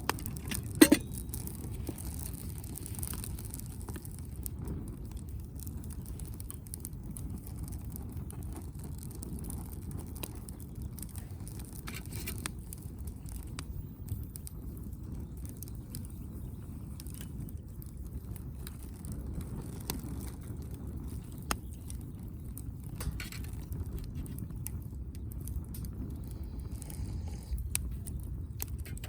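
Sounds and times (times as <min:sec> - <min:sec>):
fire low rumble: 0:00.0 - 0:29.0
wood fire crackling and popping: 0:00.0 - 0:29.0.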